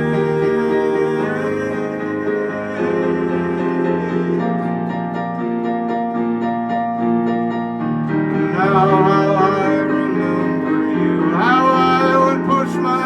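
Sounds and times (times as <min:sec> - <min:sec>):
sustained piano-like chords: 0:00.0 - 0:13.0.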